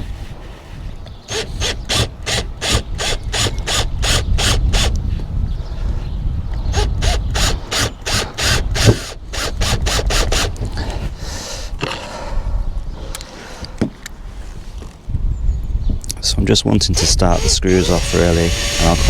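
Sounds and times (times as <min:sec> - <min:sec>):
hand ratchet clicking: 0:01.3 - 0:05.0, 0:17.2 - 0:19.0.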